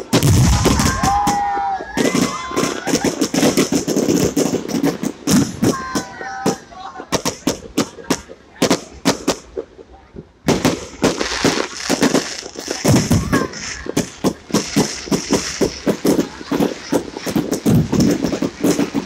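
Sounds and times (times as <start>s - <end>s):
fireworks banging and crackling: 0.0s - 19.0s.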